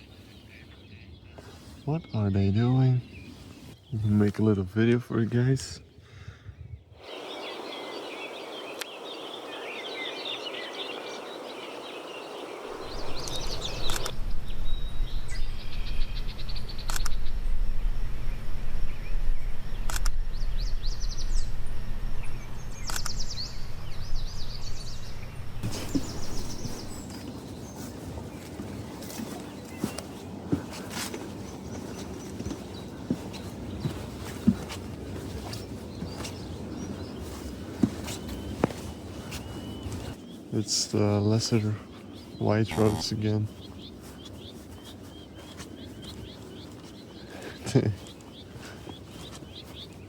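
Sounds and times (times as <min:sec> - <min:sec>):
small birds chirping: 0:00.0 - 0:50.0
steady low rumble: 0:12.7 - 0:27.1.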